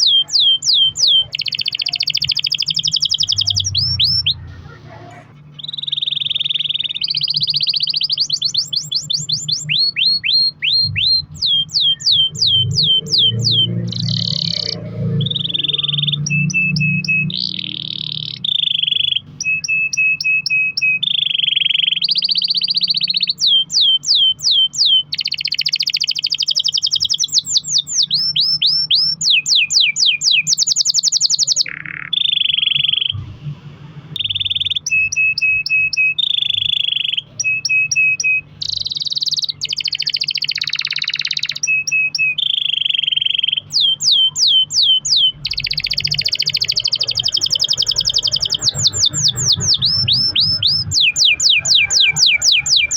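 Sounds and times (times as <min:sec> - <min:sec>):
low hum: 0:00.0 - 0:19.4, 0:32.1 - 0:35.7
canary singing: 0:00.0 - 0:52.9.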